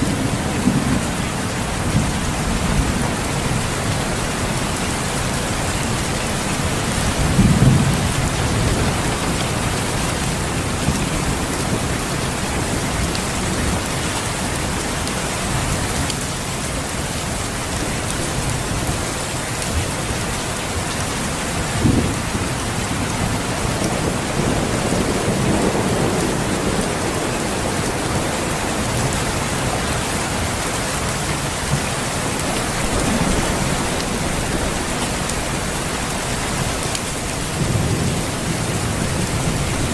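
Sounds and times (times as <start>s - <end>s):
heavy rain hissing: 0.0s - 39.9s
thunder rolling: 6.9s - 13.8s, 32.6s - 36.7s.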